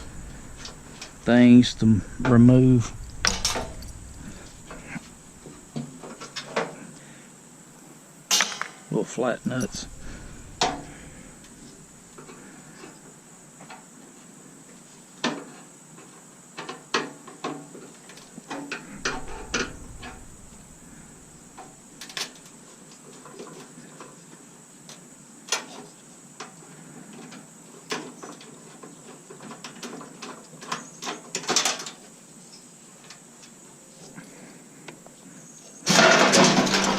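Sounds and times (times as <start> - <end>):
hand tools clinking on metal: 0.0 - 5.7, 9.4 - 11.7
metal parts clattering: 0.0 - 5.7, 9.5 - 11.8, 18.9 - 21.6, 35.9 - 36.9.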